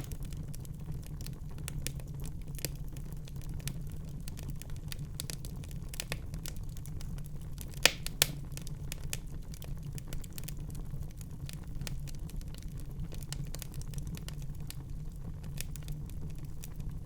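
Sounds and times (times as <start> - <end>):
loud fire pops: 0.0 - 0.8, 7.6 - 9.0
fire crackling: 0.0 - 17.0
low rumble of fire: 0.0 - 17.0.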